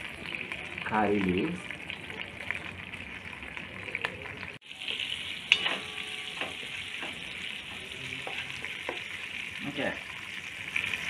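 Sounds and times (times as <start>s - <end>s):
spices sizzling in butter: 0.0s - 11.0s
spatula stirring in pot: 5.5s - 11.0s.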